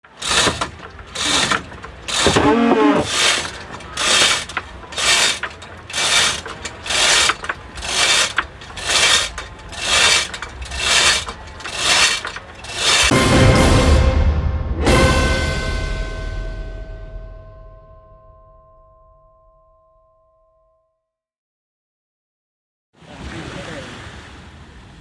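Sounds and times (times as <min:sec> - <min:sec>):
ratchet mechanism clicking: 0:00.2 - 0:13.1.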